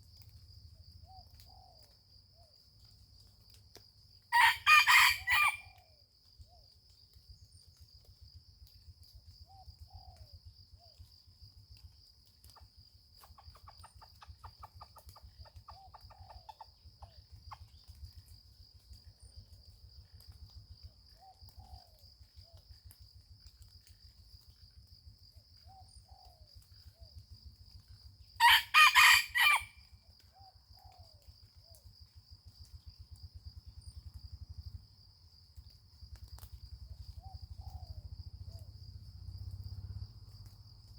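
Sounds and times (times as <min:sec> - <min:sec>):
rooster crowing: 0:04.3 - 0:05.8, 0:28.4 - 0:29.8
low rumble of patter: 0:05.6 - 0:28.8, 0:29.7 - 0:40.9.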